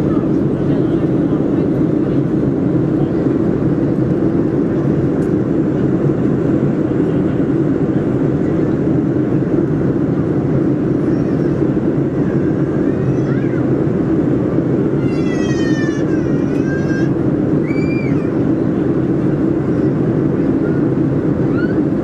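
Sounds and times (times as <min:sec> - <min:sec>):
airplane cabin drone: 0:00.0 - 0:22.0.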